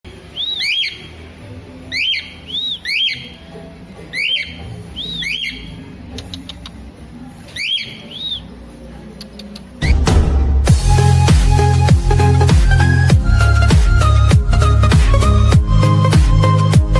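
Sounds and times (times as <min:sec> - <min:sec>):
bird whistled call: 0:00.2 - 0:01.2, 0:01.9 - 0:03.3, 0:04.1 - 0:05.8, 0:07.5 - 0:08.5, 0:09.8 - 0:10.1.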